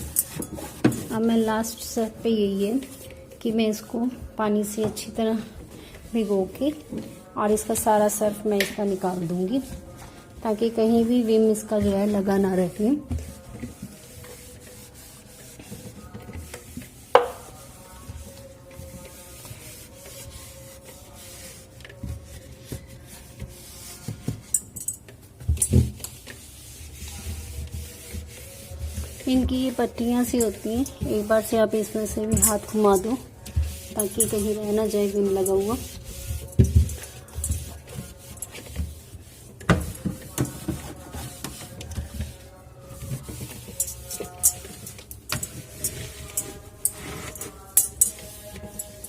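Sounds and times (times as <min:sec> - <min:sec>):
wet cloth wiping: 0:11.0 - 0:24.6, 0:25.6 - 0:44.8, 0:45.4 - 0:49.0.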